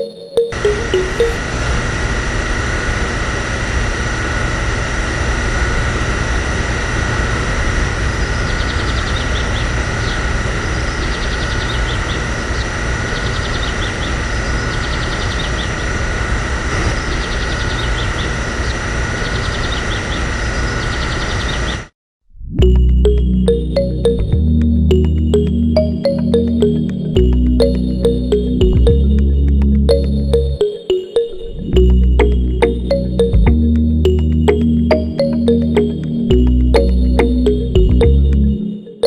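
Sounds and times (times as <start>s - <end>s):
motor whining and rumbling: 0.7s - 21.9s.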